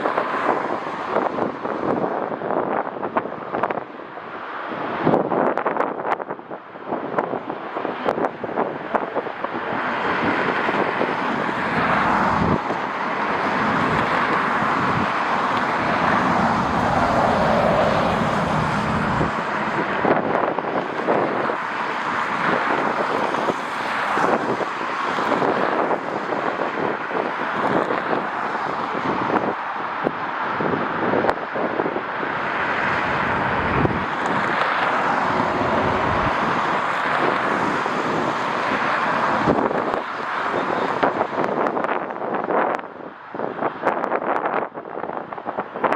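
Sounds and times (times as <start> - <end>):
wind buffeting microphone: 0.0 - 45.9
jet airliner engines passing: 9.7 - 26.2.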